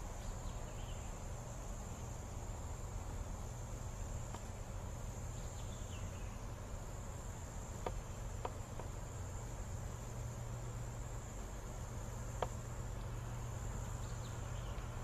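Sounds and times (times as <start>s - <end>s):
insects chirring: 0.0s - 15.0s
bird chirp: 0.1s - 1.3s, 5.3s - 6.6s, 13.0s - 15.0s
faint ticks: 4.2s - 4.6s, 7.7s - 9.4s, 11.3s - 15.0s.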